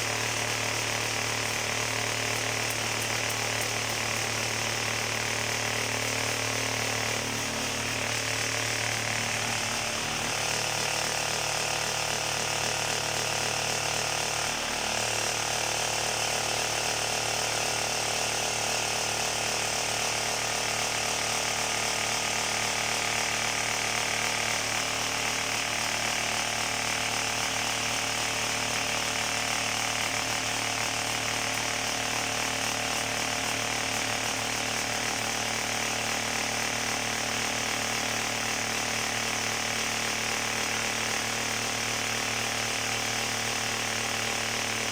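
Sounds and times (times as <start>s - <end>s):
motor hum: 0.0s - 14.8s.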